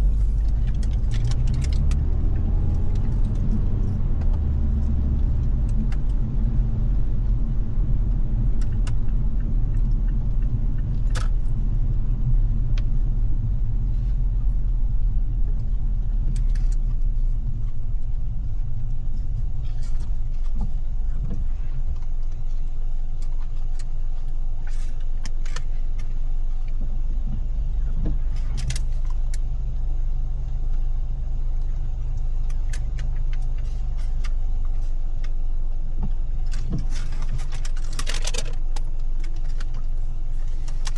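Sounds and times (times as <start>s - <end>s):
car engine rumble: 0.0s - 40.9s.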